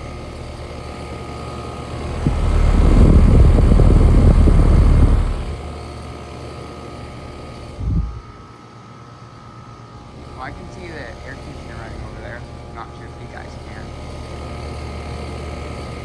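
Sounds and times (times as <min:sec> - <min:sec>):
air conditioner units humming: 0:00.0 - 0:16.0
loud low rumble: 0:01.9 - 0:05.7.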